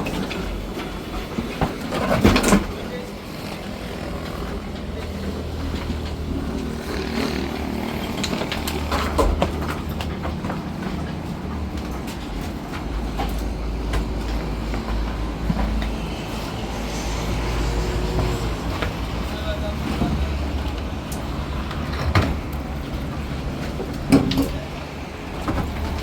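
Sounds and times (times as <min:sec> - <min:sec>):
truck body rattling and knocking: 0:00.0 - 0:26.0
truck engine running: 0:02.7 - 0:26.0.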